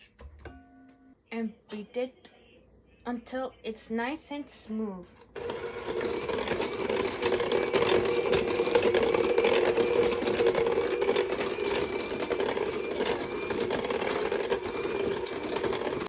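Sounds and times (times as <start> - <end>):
electric mixer beating: 5.4 - 16.0.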